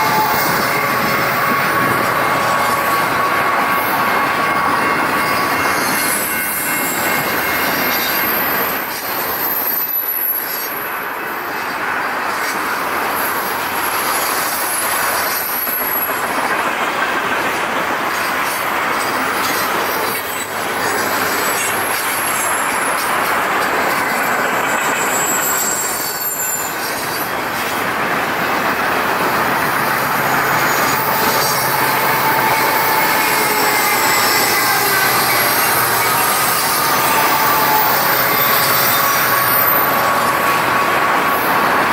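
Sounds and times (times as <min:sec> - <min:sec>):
high-pitched wheel squeal: 0:00.0 - 0:10.8, 0:19.2 - 0:27.7, 0:29.0 - 0:41.8
train wheels clattering: 0:11.5 - 0:41.9.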